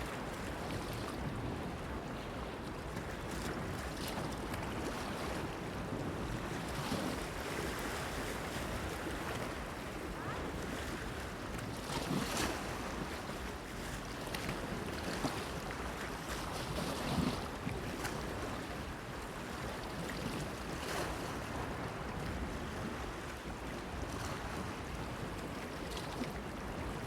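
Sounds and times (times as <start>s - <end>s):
wind: 0.0s - 27.0s.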